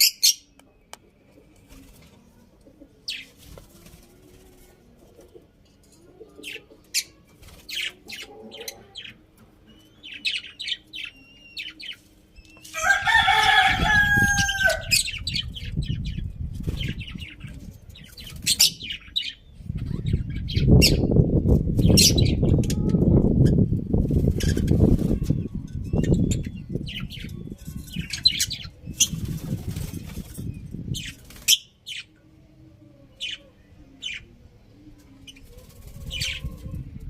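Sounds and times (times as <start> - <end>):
small birds chirping: 0.0 - 37.0
rooster crowing: 12.8 - 15.0.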